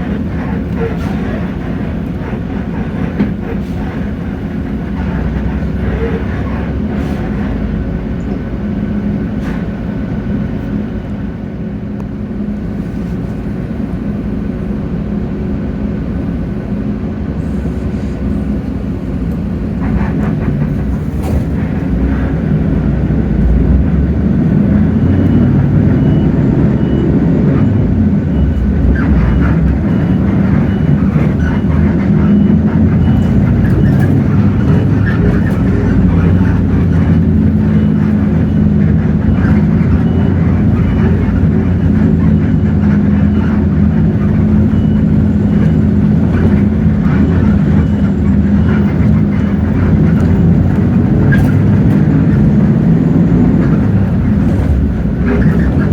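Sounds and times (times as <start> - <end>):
bus diesel engine running: 0.0 - 55.9
road rumble: 0.0 - 55.9.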